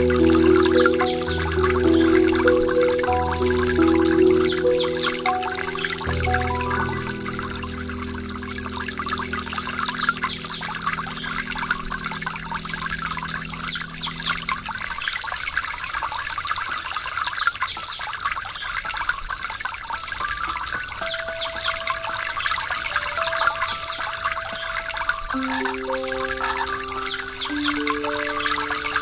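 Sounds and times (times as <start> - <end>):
waterfall rushing: 0.0 - 14.7
sustained low music notes: 0.0 - 15.0.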